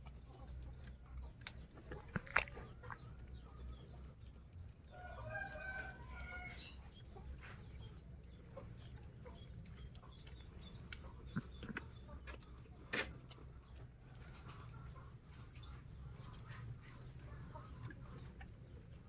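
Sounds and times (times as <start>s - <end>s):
rooster crowing: 5.0s - 6.6s.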